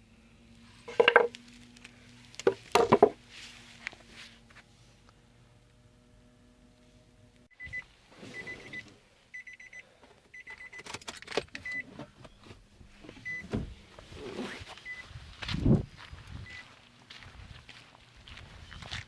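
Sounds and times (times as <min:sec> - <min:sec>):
clicks and knocks: 0:00.9 - 0:01.4.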